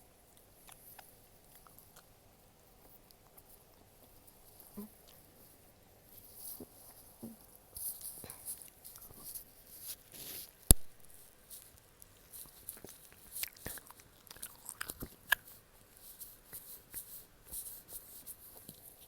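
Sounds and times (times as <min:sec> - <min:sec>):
chewing gummy candy: 0:00.2 - 0:05.4, 0:10.2 - 0:19.0
small mouth clicks: 0:12.6 - 0:15.6.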